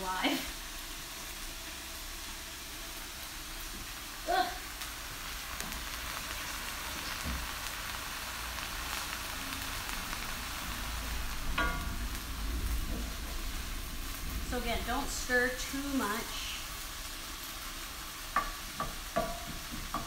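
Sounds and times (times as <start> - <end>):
vegetables sizzling in a skillet: 0.0 - 20.0
wooden spoon stirring in a pan: 11.4 - 20.0.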